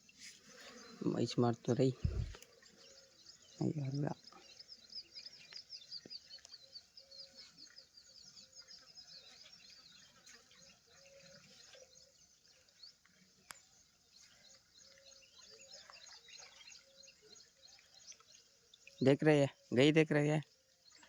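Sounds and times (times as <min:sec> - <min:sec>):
high falling chirps of night animals: 0:00.0 - 0:21.0
short low steady animal notes: 0:01.9 - 0:02.4.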